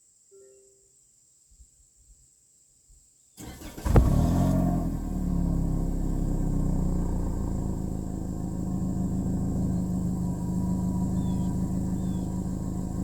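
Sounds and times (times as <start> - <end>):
car engine starting and idling: 3.4 - 13.0.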